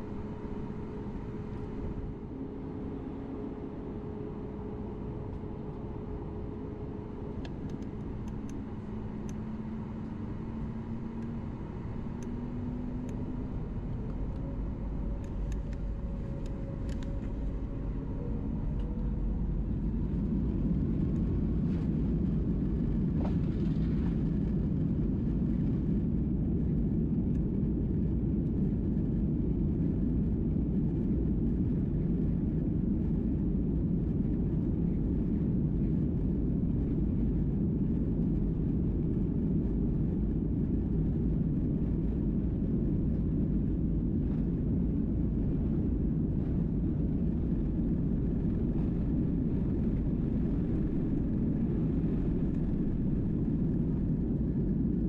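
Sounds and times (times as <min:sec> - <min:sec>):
faint rising engine tones: 0:00.0 - 0:24.0
jet engines rumbling: 0:00.0 - 0:55.0.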